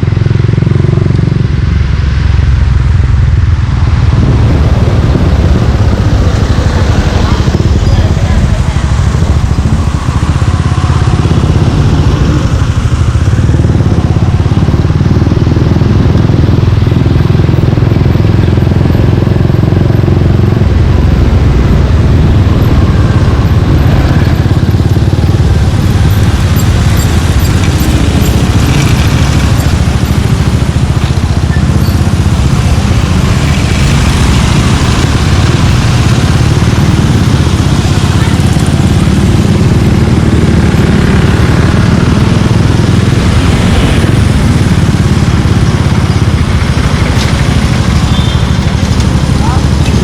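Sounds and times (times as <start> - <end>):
motorcycle engine exhaust note: 0.0 - 50.0.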